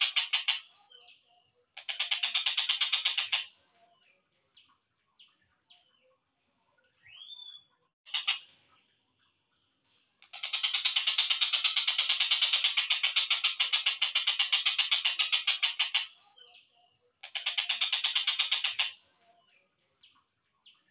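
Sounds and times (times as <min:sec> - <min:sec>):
kingfisher rattling calls: 0:00.0 - 0:00.8, 0:01.8 - 0:03.5, 0:08.1 - 0:08.5, 0:10.2 - 0:16.2, 0:17.2 - 0:19.0.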